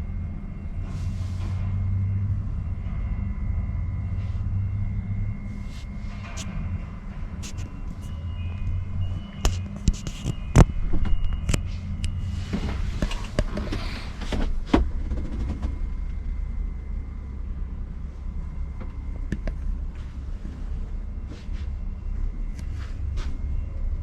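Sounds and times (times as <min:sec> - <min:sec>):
truck diesel engine idling: 0:00.0 - 0:10.6.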